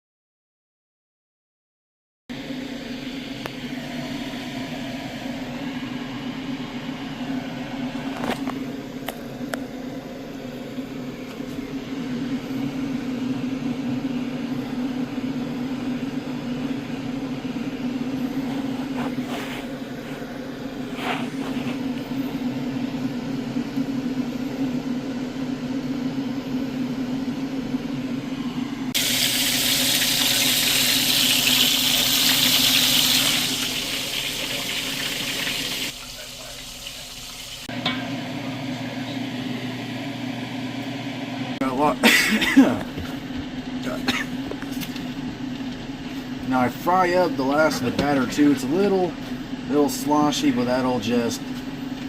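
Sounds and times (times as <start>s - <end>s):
low hum with hiss: 2.4s - 52.0s
tap water running: 29.0s - 38.0s.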